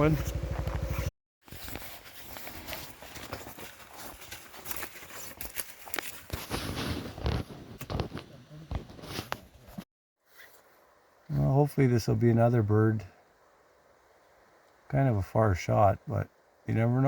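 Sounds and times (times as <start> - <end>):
rustling and crackling: 0.2 - 10.8.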